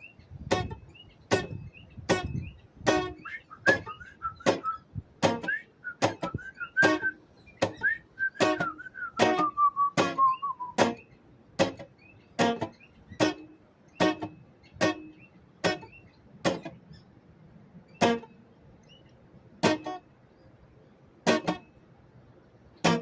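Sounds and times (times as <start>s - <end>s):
faint bird chirping: 0.0s - 23.0s
guitar chords ringing: 0.5s - 16.8s, 18.0s - 18.4s, 19.6s - 20.1s, 21.2s - 21.8s
whistled note: 3.0s - 10.8s.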